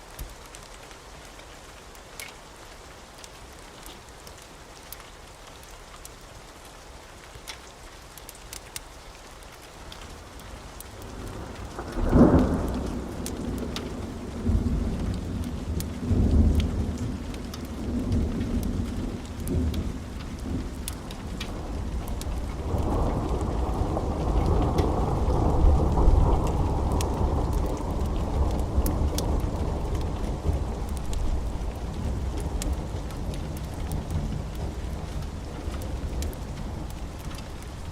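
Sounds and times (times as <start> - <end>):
steady rain: 0.0 - 37.9
thunder crack and rumbles: 11.0 - 37.9.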